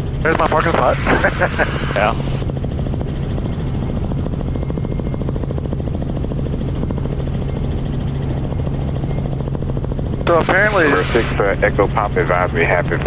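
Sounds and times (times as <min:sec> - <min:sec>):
helicopter cabin drone: 0:00.0 - 0:13.0.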